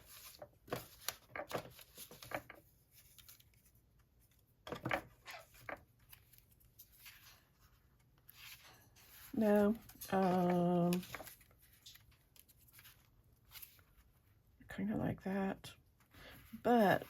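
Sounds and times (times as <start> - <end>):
paper rustling: 0.0 - 14.2.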